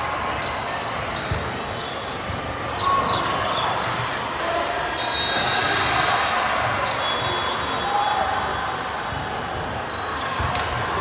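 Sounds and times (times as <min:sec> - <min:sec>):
sneaker squeaks on court: 0:00.4 - 0:04.0.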